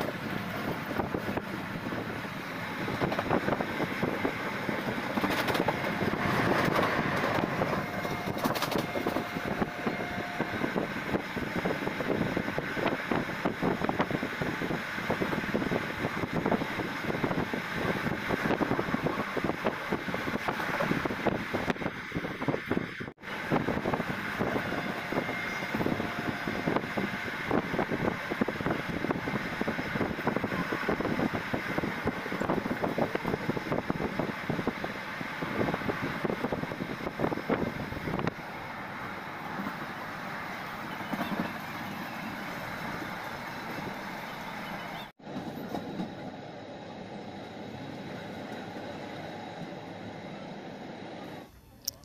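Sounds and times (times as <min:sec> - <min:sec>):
train wheels clattering on rails: 0:00.0 - 0:09.7, 0:40.6 - 0:46.3.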